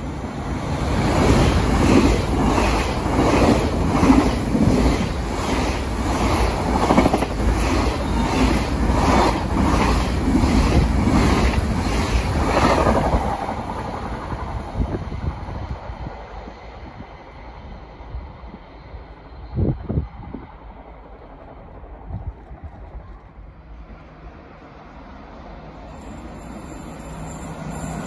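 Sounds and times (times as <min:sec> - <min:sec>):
train wheels clattering over rails: 0:00.9 - 0:14.5.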